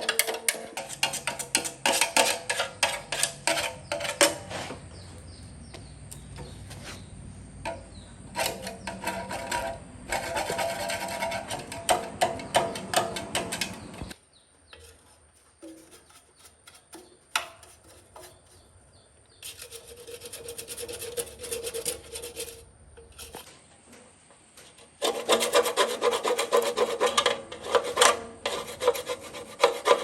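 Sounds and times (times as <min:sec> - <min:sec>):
hand rasping metal part: 0:07.7 - 0:14.2, 0:19.4 - 0:23.5, 0:25.0 - 0:30.0.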